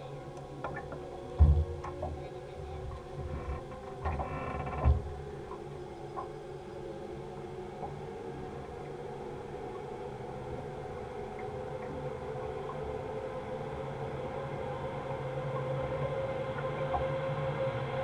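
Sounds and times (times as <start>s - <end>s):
boat engine humming: 0.0s - 18.0s
low thump: 1.4s - 2.2s.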